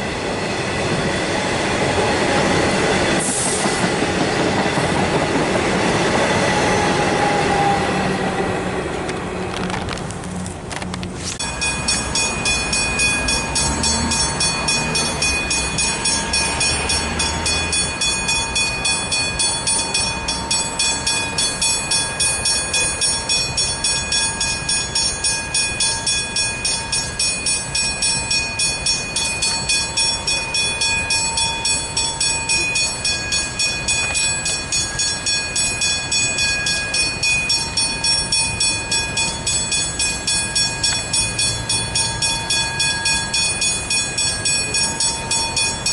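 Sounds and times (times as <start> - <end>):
level crossing bell ringing: 11.4 - 45.9.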